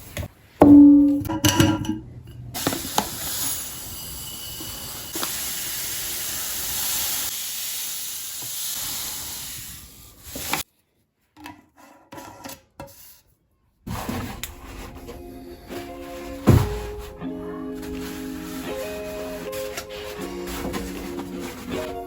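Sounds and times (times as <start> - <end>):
grainy hissing rush: 2.6 - 10.6.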